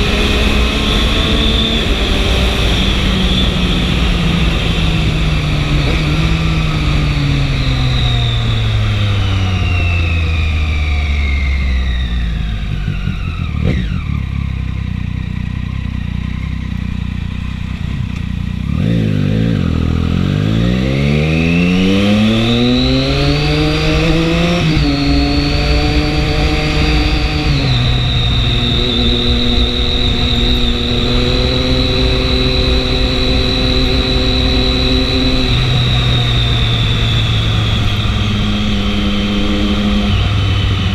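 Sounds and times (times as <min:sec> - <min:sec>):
motorcycle engine revving: 0:00.0 - 0:40.9
high whine: 0:17.0 - 0:40.9.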